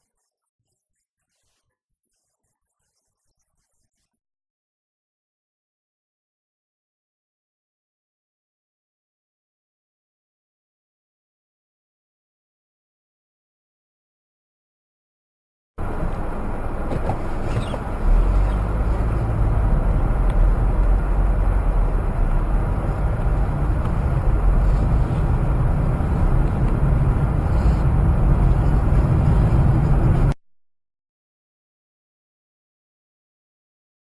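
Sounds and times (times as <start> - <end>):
car road and engine noise: 15.8 - 30.4.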